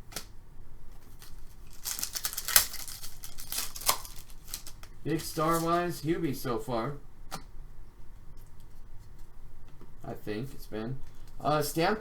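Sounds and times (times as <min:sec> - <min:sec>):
cards clicking: 0:01.0 - 0:05.7
wrapper tearing and crinkling: 0:01.0 - 0:05.8.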